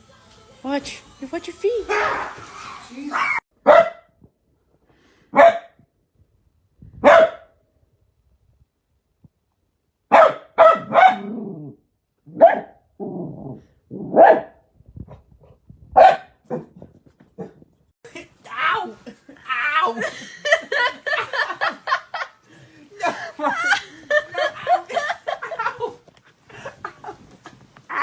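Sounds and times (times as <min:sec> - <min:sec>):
dog barking: 0:01.9 - 0:04.1, 0:05.3 - 0:05.8, 0:07.0 - 0:07.5, 0:10.1 - 0:11.5, 0:12.3 - 0:12.8, 0:14.0 - 0:14.6, 0:16.0 - 0:16.8
dog growling: 0:11.2 - 0:12.4, 0:13.0 - 0:14.2.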